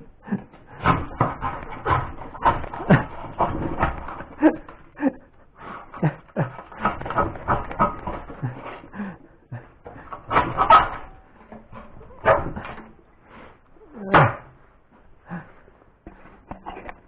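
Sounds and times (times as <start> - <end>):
dog barking: 12.2 - 12.6.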